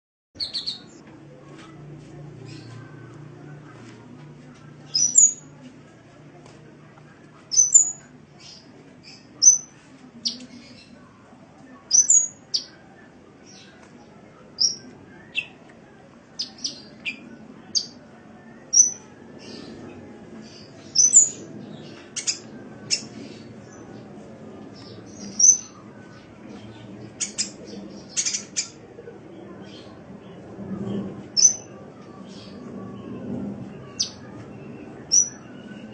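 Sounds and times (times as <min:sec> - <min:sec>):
bird chirping: 0:00.4 - 0:01.0, 0:04.9 - 0:05.4, 0:07.5 - 0:10.9, 0:11.9 - 0:12.8, 0:20.6 - 0:23.9
faint low hum: 0:00.4 - 0:35.9.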